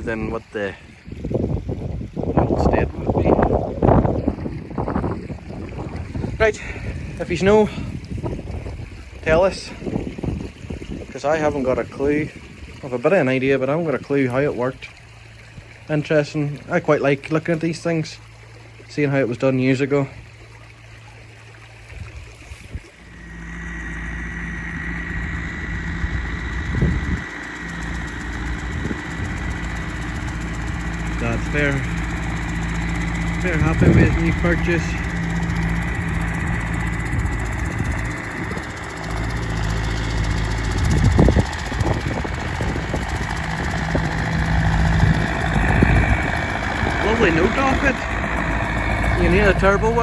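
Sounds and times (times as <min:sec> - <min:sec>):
tractor engine running: 0:00.0 - 0:20.0, 0:22.9 - 0:50.0
high whine: 0:23.0 - 0:50.0.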